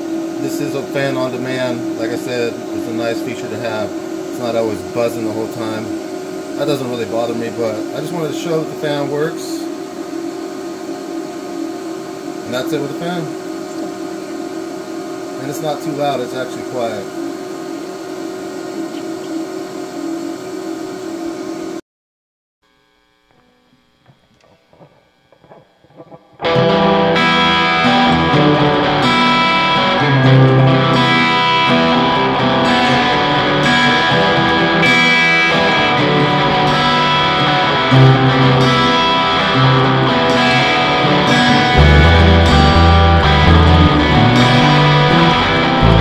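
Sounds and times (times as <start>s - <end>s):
rock music with electric guitar: 24.7s - 46.0s.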